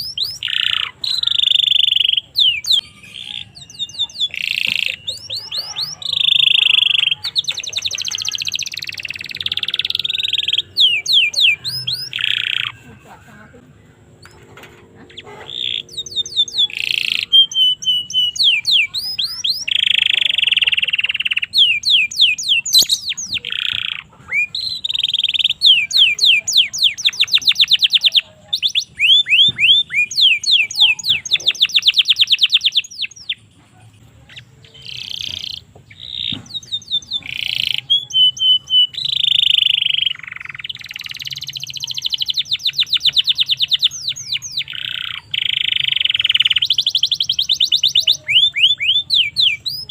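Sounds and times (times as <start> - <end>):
canary singing: 0.0 - 49.9.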